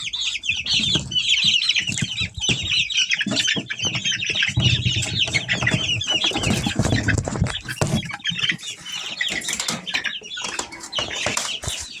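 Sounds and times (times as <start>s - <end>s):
chicks peeping: 0.0s - 12.0s
wings flapping: 4.8s - 12.0s.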